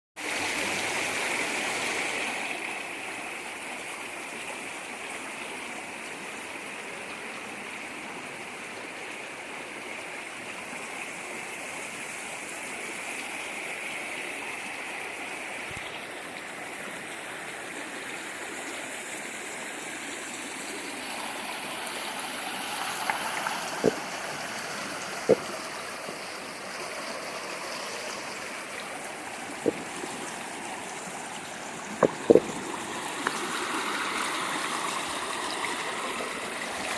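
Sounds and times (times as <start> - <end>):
waterfall rushing: 20.4 - 36.9.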